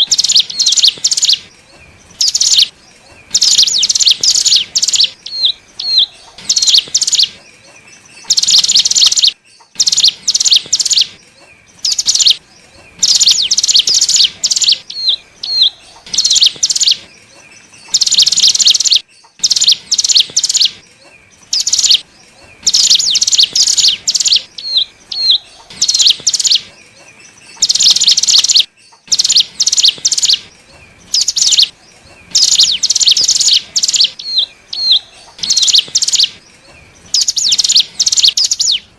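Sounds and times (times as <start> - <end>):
bird singing trilled bursts: 0.0 - 38.9
single bird chirps: 32.3 - 36.4.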